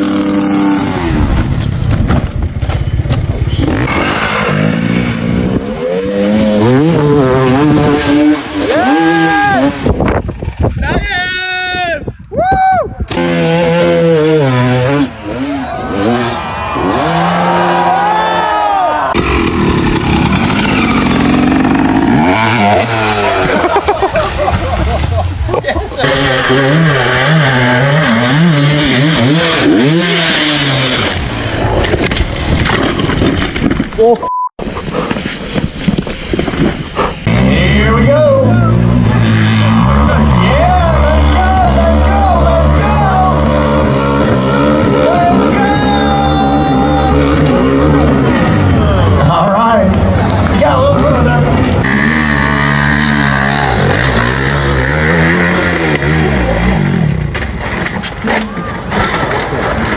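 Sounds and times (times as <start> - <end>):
motorcycle engine revving: 0.0 - 9.9, 13.1 - 18.5, 19.1 - 33.5, 37.2 - 59.9
rough unpitched rumble: 19.1 - 34.0.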